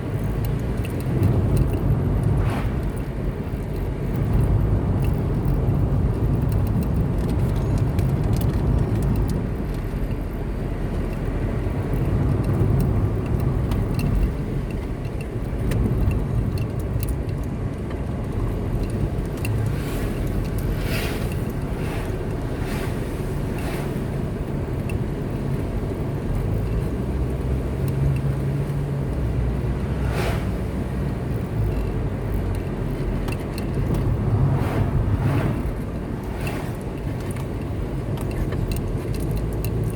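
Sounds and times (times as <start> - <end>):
car engine and tyres rumbling: 0.0 - 39.9
short hissing swishes: 30.0 - 30.6.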